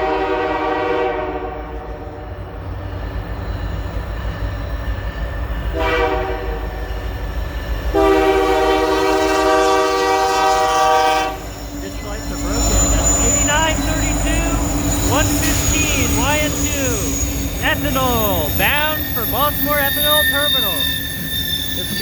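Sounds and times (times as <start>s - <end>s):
locomotive horn blasts: 0.0s - 1.8s, 5.8s - 6.6s, 8.0s - 20.9s
diesel locomotive rumble: 1.6s - 22.0s.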